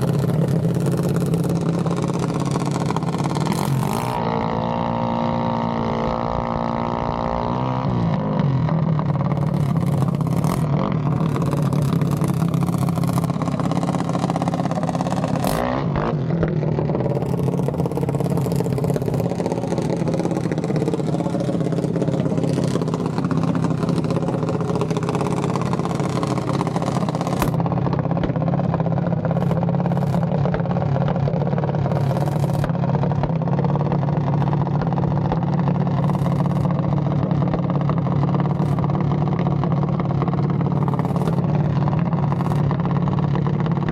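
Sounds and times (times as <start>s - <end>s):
low engine drone: 0.0s - 43.9s
mini bike engines revving: 0.0s - 43.9s
sharp engine pops: 15.3s - 19.3s, 27.0s - 28.5s.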